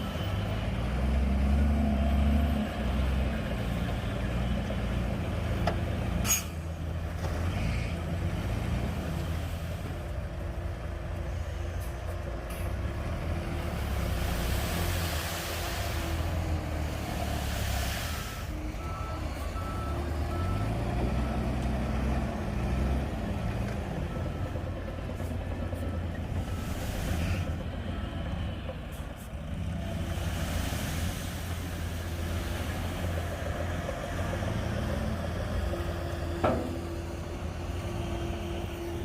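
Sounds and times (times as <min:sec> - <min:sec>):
bulldozer diesel engine running: 0:00.0 - 0:39.0
hiss: 0:13.8 - 0:18.5, 0:26.5 - 0:27.5, 0:30.1 - 0:33.3.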